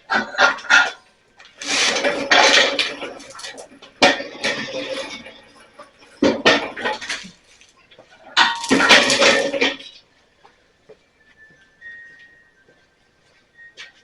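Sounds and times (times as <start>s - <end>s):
metal clanking and rattling: 0.0s - 10.0s.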